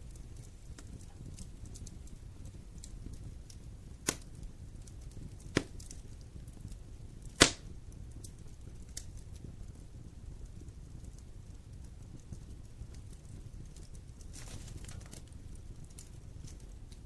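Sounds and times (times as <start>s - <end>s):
burning wood popping: 0.0s - 17.0s
fire flames rumbling: 0.0s - 17.0s.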